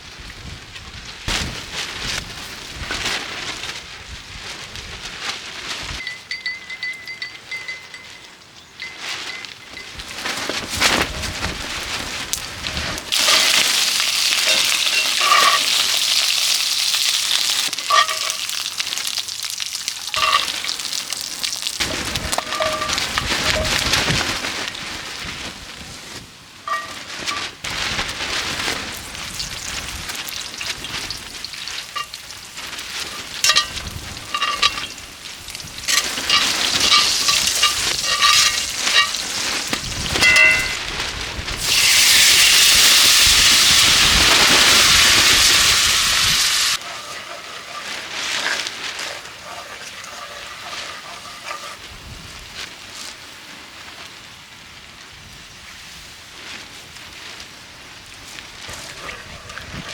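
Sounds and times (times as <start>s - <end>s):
utensil clinking on pan: 6.0s - 10.0s, 13.2s - 16.5s, 17.7s - 18.6s, 20.2s - 21.6s, 22.2s - 23.8s, 26.7s - 27.1s, 33.0s - 35.0s, 35.9s - 40.8s, 46.8s - 51.9s
campfire crackling: 9.8s - 59.9s
meat sizzling in a pan: 13.0s - 23.7s, 29.3s - 40.8s, 41.6s - 51.8s.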